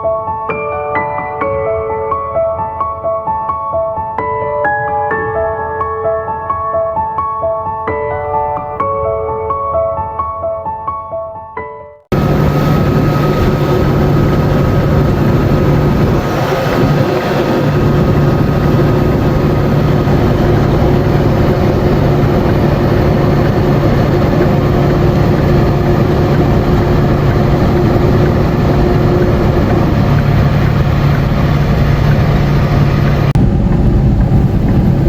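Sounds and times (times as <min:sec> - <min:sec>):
heavy vehicle engine drone: 0:12.1 - 0:35.0
road noise: 0:12.1 - 0:35.0.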